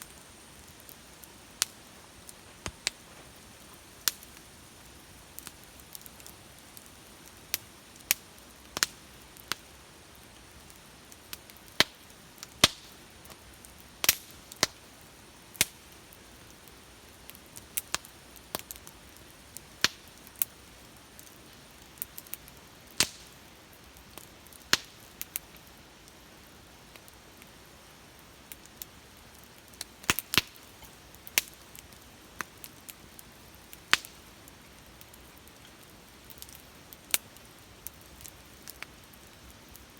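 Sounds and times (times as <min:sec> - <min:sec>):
bonfire crackling and popping: 0:00.0 - 0:39.9
faint steady hiss: 0:00.0 - 0:39.9.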